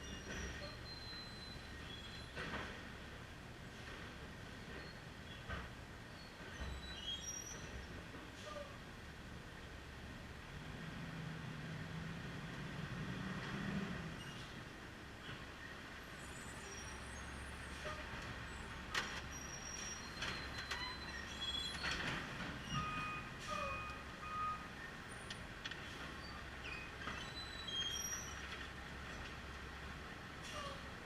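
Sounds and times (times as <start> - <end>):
garbage truck engine rumble: 0.0 - 31.0.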